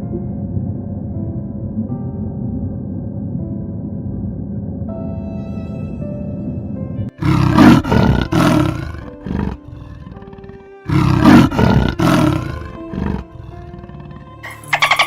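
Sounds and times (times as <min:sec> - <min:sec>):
background music: 0:00.0 - 0:15.0
large animal harsh calls: 0:07.2 - 0:13.8, 0:14.4 - 0:15.0.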